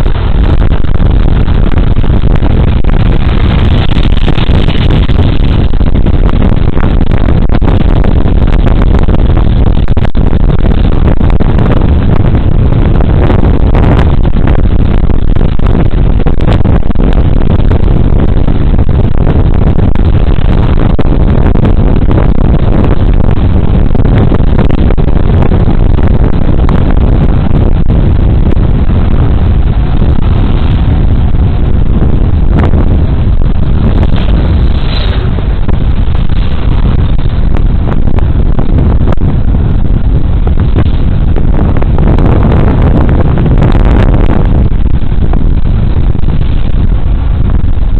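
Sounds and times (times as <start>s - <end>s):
wind and road noise: 0.0s - 47.9s.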